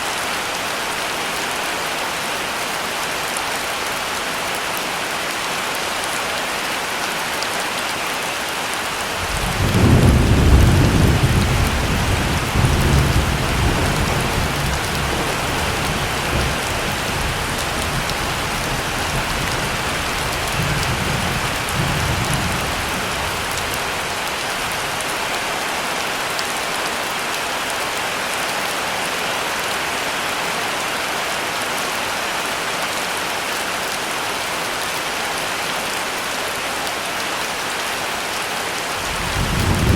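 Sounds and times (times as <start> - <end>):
heavy rain: 0.0 - 39.9
thunder rumbling: 9.2 - 23.7, 39.0 - 39.9.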